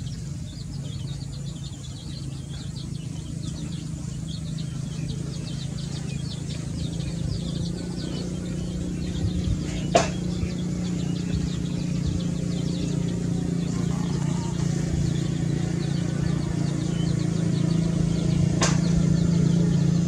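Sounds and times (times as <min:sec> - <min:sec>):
small birds chirping: 0:00.0 - 0:20.0
steady low hum: 0:00.0 - 0:20.0
sharp knock: 0:10.0 - 0:10.2, 0:18.6 - 0:18.9.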